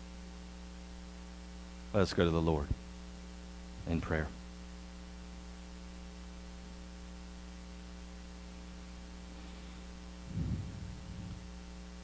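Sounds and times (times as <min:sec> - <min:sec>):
electrical mains hum: 0:00.0 - 0:12.0
low rumble: 0:10.2 - 0:11.6.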